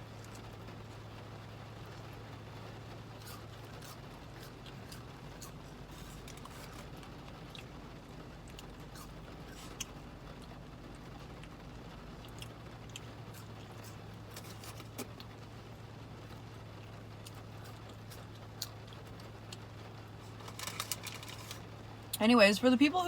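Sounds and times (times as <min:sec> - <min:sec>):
steady low hum: 0:00.0 - 0:23.0
chewing and mouth sounds: 0:03.2 - 0:07.8, 0:08.4 - 0:11.6, 0:12.2 - 0:15.4, 0:17.2 - 0:21.6.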